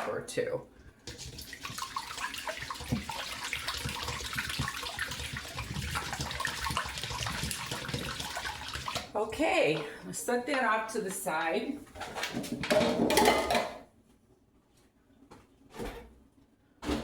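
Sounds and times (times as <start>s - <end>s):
liquid sloshing: 1.1s - 10.0s.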